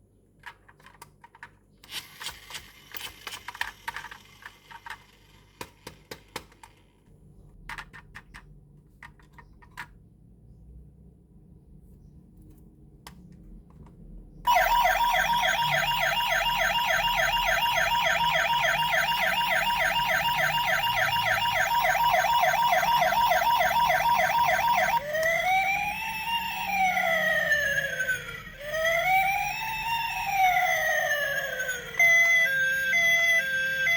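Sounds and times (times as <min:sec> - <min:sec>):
toy siren warbling and wailing: 0:14.5 - 0:33.9.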